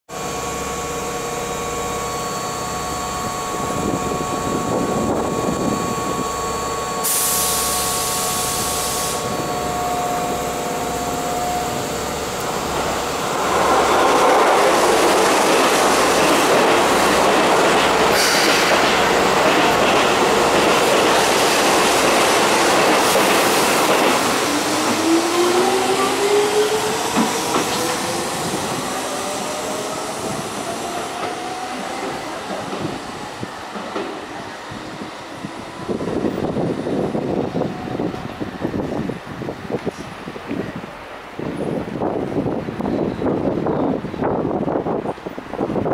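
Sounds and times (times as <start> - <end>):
train wheel and rail noise: 0.1 - 45.9
hiss burst: 7.0 - 9.3, 18.1 - 18.8.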